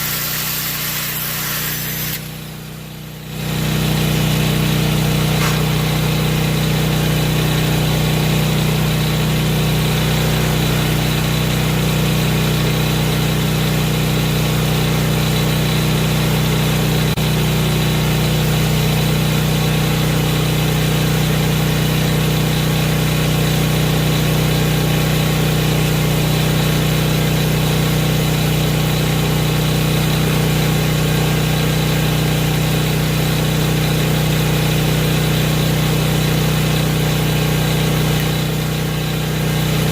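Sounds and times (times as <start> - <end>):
angle grinder running: 0.0 - 11.8.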